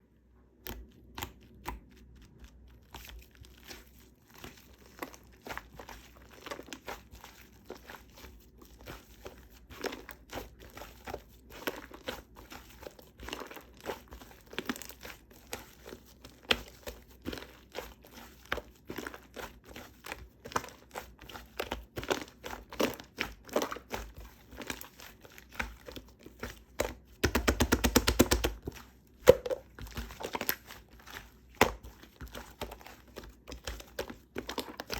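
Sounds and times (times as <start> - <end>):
shaving foam squished by hand: 0.6 - 34.9.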